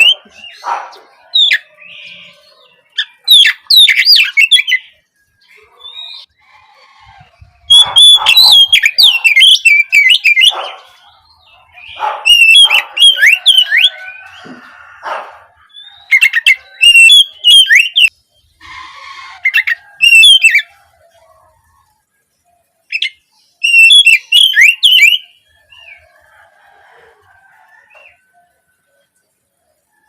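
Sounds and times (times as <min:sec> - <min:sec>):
bird whistled song: 0:02.9 - 0:04.9, 0:07.7 - 0:10.8, 0:11.7 - 0:14.5, 0:15.7 - 0:18.1, 0:19.4 - 0:20.7, 0:22.9 - 0:26.0
harsh rasping bird call: 0:05.7 - 0:20.8.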